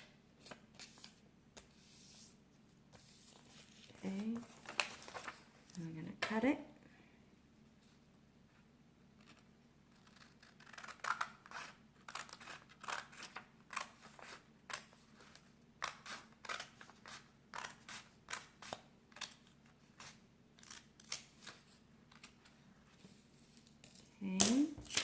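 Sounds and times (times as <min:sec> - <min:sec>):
scissors snipping paper: 0:10.0 - 0:15.0.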